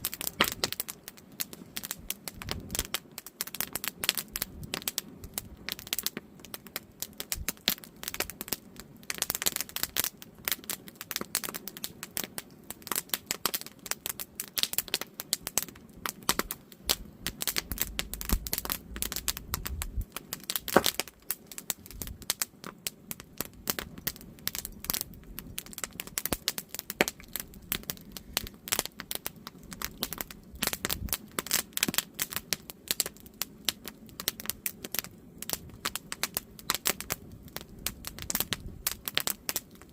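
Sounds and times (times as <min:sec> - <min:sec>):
campfire crackling: 0:00.0 - 0:39.9
low rumble: 0:17.7 - 0:20.1.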